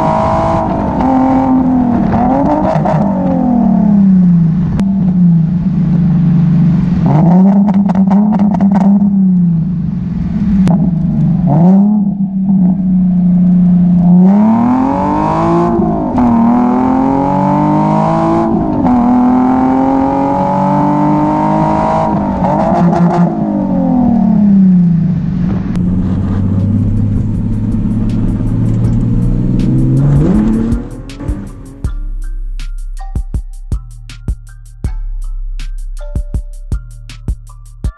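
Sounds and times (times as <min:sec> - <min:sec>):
car engine accelerating: 0:00.0 - 0:37.7
music with a beat: 0:26.2 - 0:37.9.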